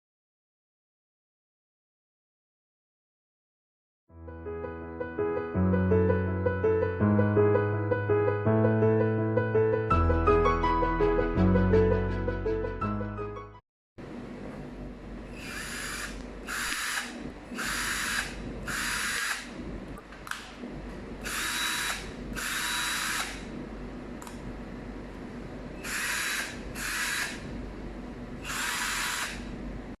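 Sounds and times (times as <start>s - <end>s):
cordless drill running in bursts: 15.3s - 19.5s, 21.2s - 23.5s, 25.8s - 27.4s, 28.4s - 29.5s.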